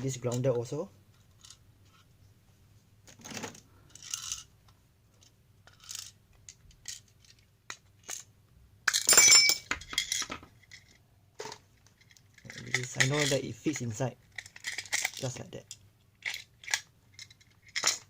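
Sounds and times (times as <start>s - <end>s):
clattering clink with metallic ring: 8.9s - 9.7s.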